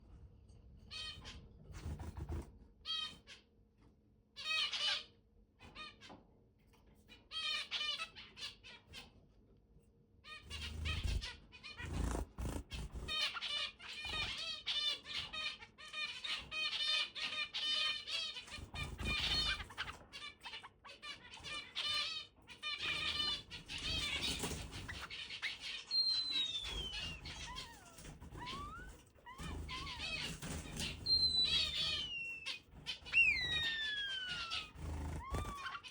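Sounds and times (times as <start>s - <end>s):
finch singing: 10.3s - 35.9s.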